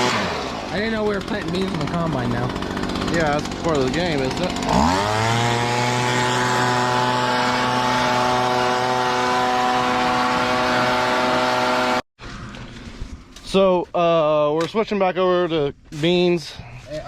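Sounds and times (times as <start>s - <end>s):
engine revving at high speed: 0.0s - 12.0s.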